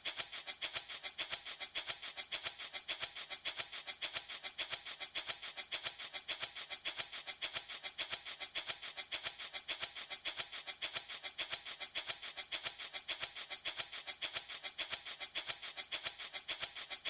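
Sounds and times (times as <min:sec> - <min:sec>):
baby rattle shaken: 0:00.0 - 0:17.0.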